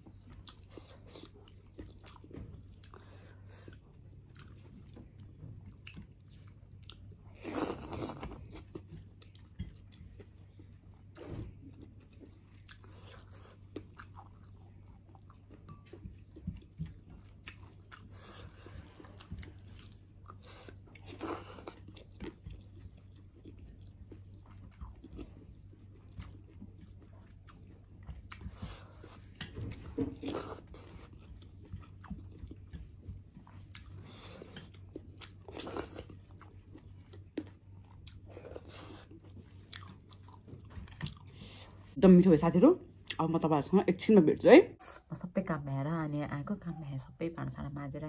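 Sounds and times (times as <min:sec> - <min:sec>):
chewing and crunching: 0:00.0 - 0:42.0.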